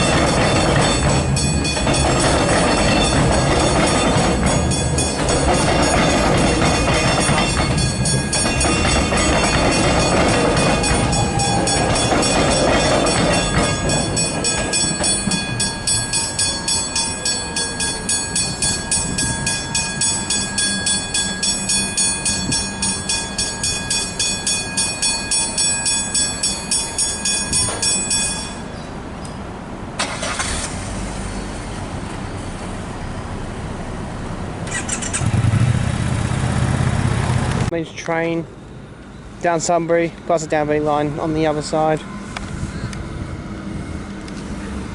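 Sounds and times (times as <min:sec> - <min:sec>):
level crossing bells ringing: 0:00.0 - 0:28.8
passing train rumble: 0:00.0 - 0:44.9
vehicle rumble: 0:27.6 - 0:44.9.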